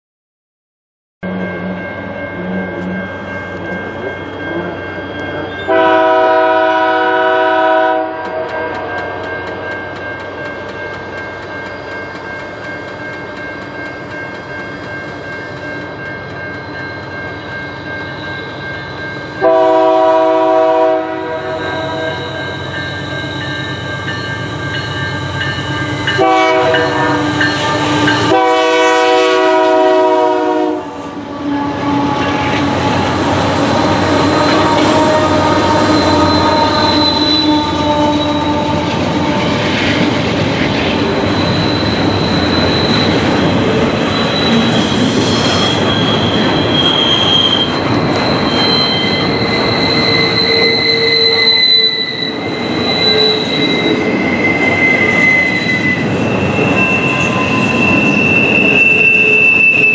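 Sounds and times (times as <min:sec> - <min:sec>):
train engines and wheels running: 0:01.2 - 0:59.9
locomotive air horn blasts: 0:05.7 - 0:09.2, 0:19.4 - 0:22.6, 0:25.8 - 0:33.2, 0:34.0 - 0:39.2.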